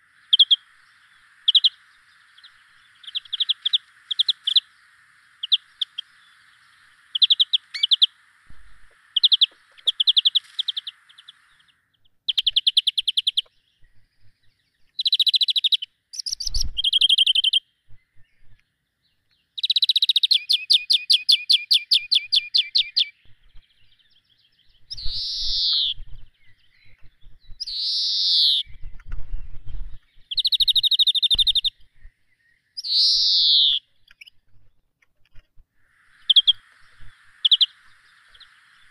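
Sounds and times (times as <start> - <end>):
steady hiss: 0.0 - 17.5, 23.2 - 27.0, 35.6 - 38.9
songbird trilling: 0.0 - 18.6, 19.4 - 34.4, 35.8 - 38.9.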